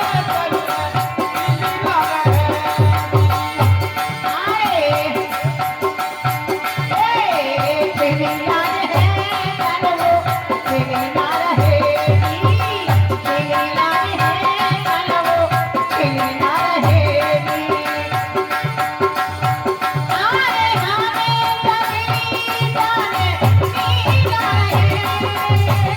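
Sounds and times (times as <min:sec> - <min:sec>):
hand drum beating: 0:09.0 - 0:25.9.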